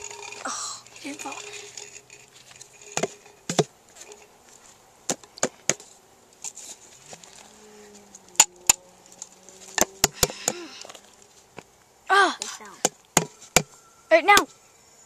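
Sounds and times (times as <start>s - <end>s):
container knocks and taps: 3.0s - 3.7s.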